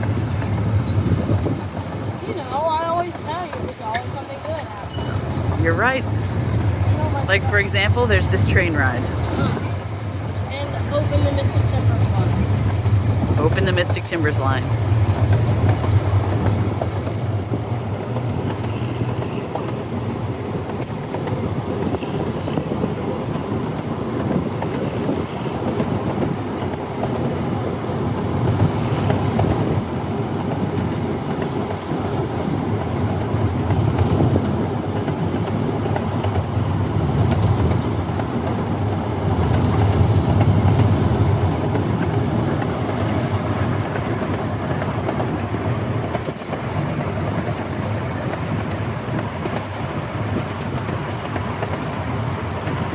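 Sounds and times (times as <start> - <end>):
ride-on train wheels rumbling: 0.0 - 52.9.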